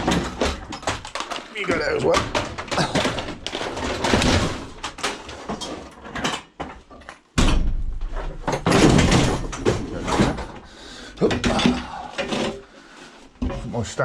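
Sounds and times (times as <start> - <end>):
scrap metal knocks and scrapes: 2.2 - 7.1, 11.4 - 13.9.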